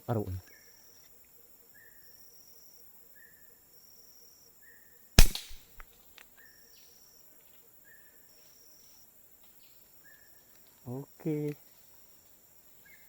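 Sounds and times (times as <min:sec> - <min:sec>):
air rifle shot: 0:05.2 - 0:05.8.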